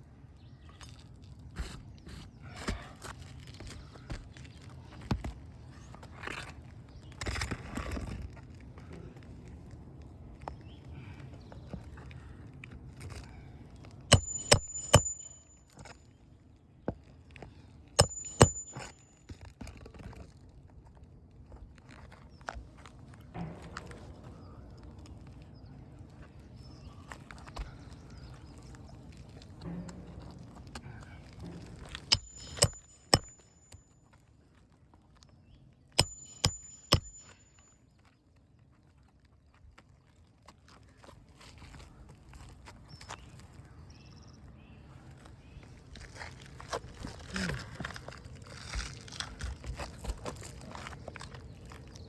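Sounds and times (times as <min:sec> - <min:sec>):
shingle shuffling and scraping: 0:00.8 - 0:09.2, 0:26.1 - 0:33.9, 0:45.1 - 0:52.0
hammer striking roofing nails: 0:14.1 - 0:15.5, 0:18.0 - 0:19.0, 0:32.0 - 0:33.7, 0:36.0 - 0:37.6
high metallic ring: 0:14.1 - 0:15.9, 0:18.0 - 0:19.2, 0:32.1 - 0:34.0, 0:36.0 - 0:37.7.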